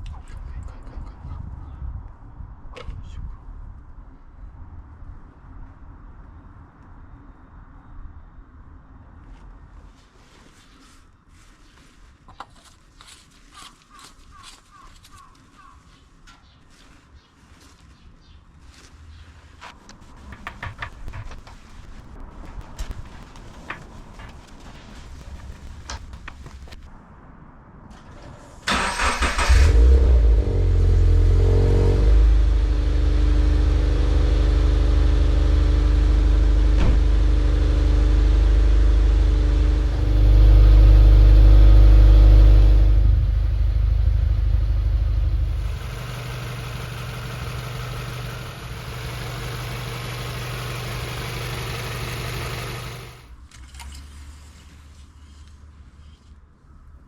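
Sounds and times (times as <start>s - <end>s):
starter cranking engine: 28.7s - 29.8s, 42.6s - 53.3s
car engine idling: 34.4s - 53.3s.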